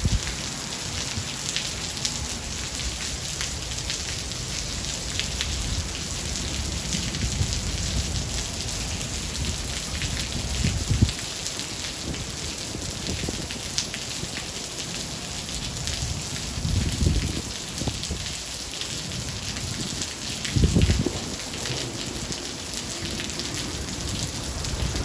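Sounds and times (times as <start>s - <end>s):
heavy rain pattering: 0.0s - 25.0s
low thunder rumble: 19.1s - 25.0s.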